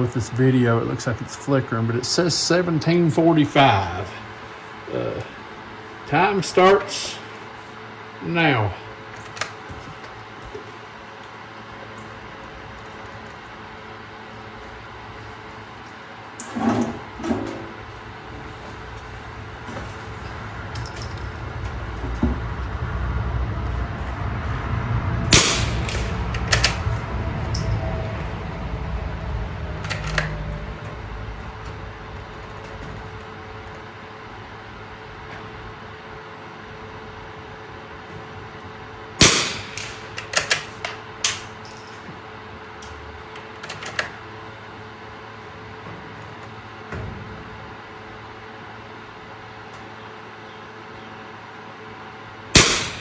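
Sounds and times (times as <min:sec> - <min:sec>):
low steady rumble: 0:00.0 - 0:42.1
rifle shot: 0:25.3 - 0:26.8, 0:39.2 - 0:40.4, 0:52.6 - 0:53.0.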